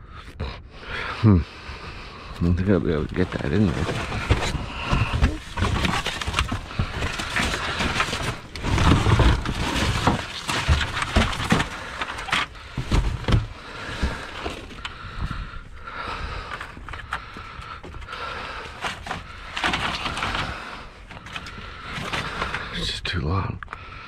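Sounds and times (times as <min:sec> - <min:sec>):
scrap metal clanking and scraping: 0:02.9 - 0:15.0.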